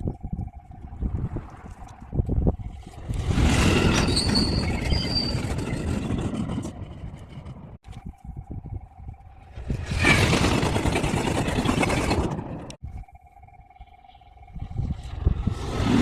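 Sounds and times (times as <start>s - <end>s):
high-pitched wheel squeals: 3.7s - 6.1s.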